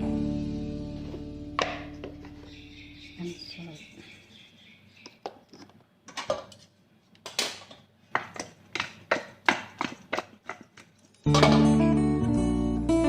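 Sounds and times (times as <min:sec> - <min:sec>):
utensils and dishes clinking: 0:10.6 - 0:11.7.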